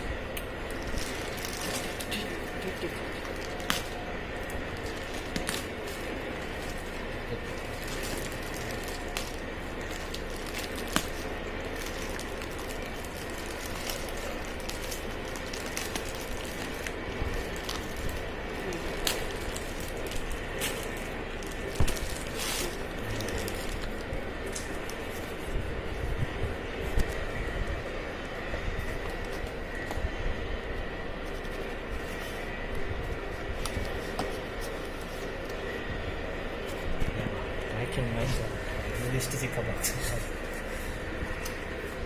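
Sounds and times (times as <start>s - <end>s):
faint hum: 0.0s - 42.0s
cardboard packaging clicks and crackles: 0.4s - 25.6s, 33.4s - 35.6s.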